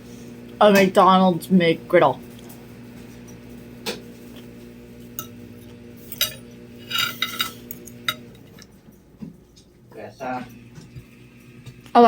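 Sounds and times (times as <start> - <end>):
cutlery clinking against a plate: 6.1 - 8.7.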